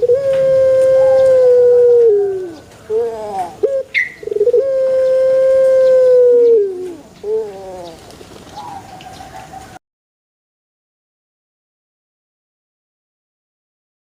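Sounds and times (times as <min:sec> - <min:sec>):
dove cooing: 0:00.0 - 0:09.8.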